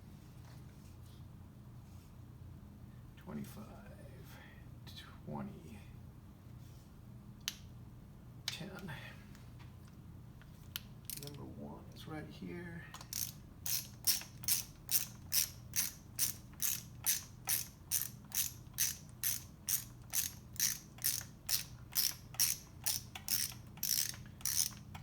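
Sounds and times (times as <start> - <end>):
ratchet wrench clicking: 11.1 - 11.4, 13.0 - 25.0.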